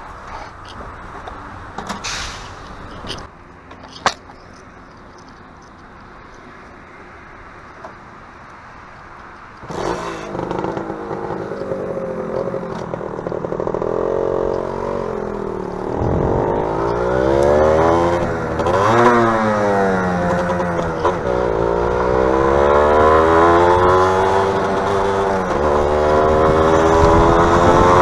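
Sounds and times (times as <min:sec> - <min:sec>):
small motorcycle engine accelerating: 0:09.6 - 0:28.0.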